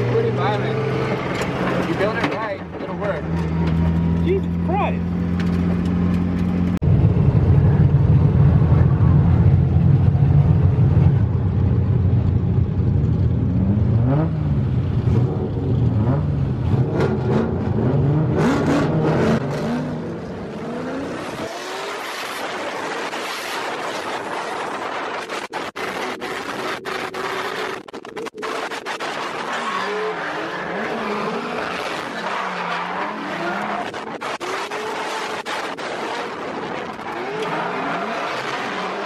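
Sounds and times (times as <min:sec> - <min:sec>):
car engine revving: 0:13.1 - 0:39.0.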